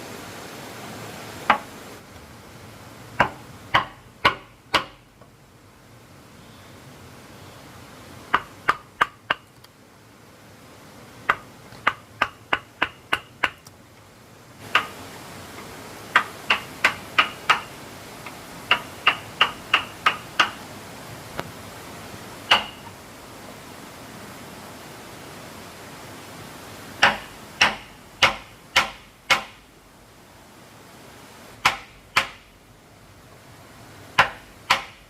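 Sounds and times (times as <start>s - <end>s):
hammer driving nails into wood: 3.2s - 5.0s, 22.5s - 22.8s, 27.0s - 29.6s, 31.6s - 32.5s, 34.2s - 35.0s.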